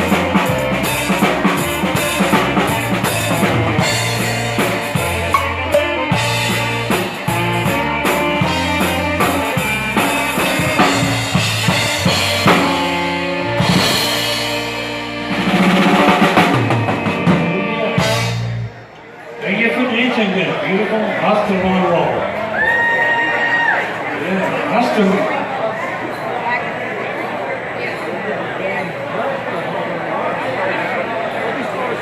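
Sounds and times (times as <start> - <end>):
drum kit beat: 0.0 - 18.8
bass line: 0.0 - 18.9
dance band playing: 0.0 - 23.9.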